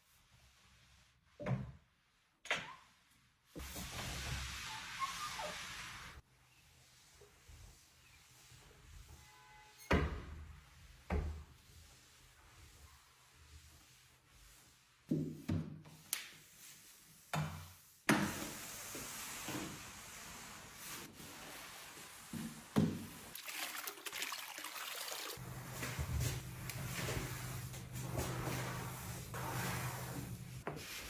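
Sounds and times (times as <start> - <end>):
pouring into a container: 23.4 - 25.4.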